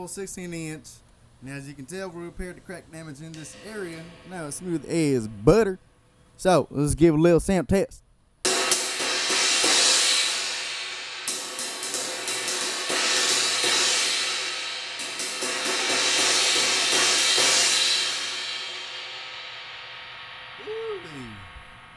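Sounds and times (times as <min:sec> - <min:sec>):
crash cymbal struck with a stick: 0:03.3 - 0:05.2, 0:08.5 - 0:21.9.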